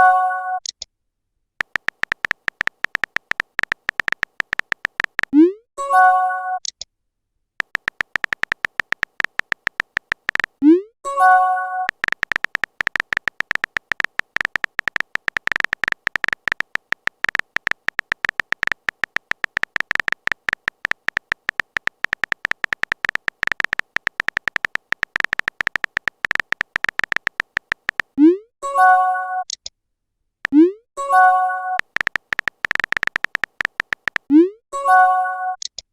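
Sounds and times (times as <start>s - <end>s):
phone keyboard typing clicks: 1.6s - 5.4s, 7.6s - 10.6s, 11.8s - 28.2s, 31.8s - 34.3s.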